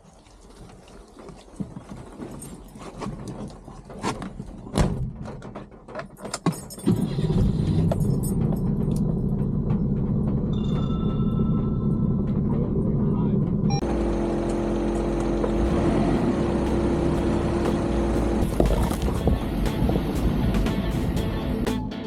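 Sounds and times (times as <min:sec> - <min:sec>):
car engine starting and idling: 0:05.6 - 0:21.8.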